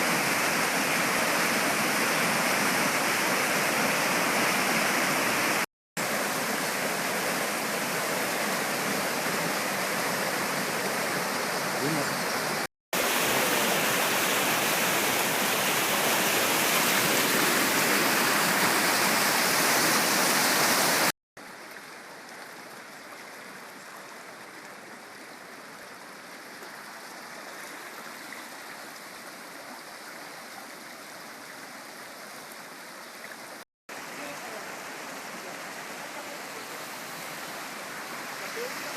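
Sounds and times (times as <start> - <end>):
heavy rain: 0.0 - 22.2
rushing runoff water: 0.0 - 38.9.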